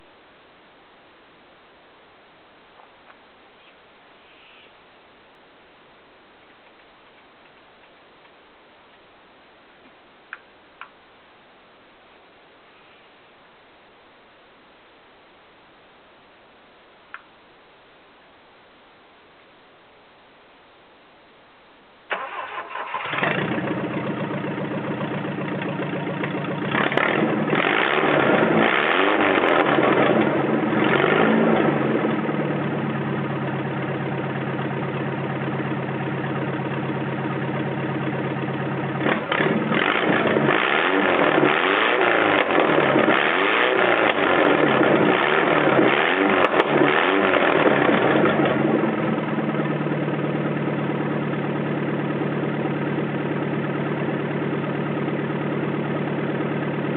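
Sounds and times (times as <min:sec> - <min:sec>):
engine idling and revving: 0:22.2 - 0:56.9.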